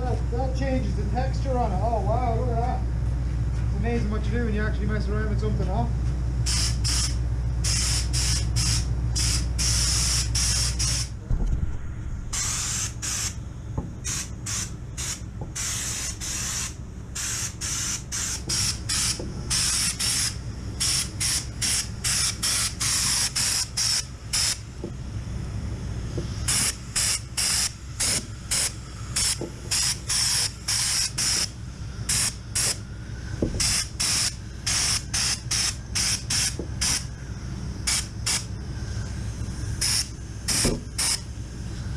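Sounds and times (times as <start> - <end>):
steady low hum: 0.0 - 41.9
spray gun hissing bursts: 6.5 - 11.2, 12.2 - 24.8, 26.2 - 41.9.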